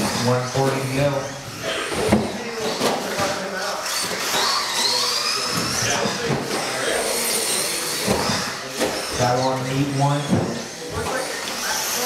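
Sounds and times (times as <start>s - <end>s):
rc truck motors whining: 3.4s - 12.0s.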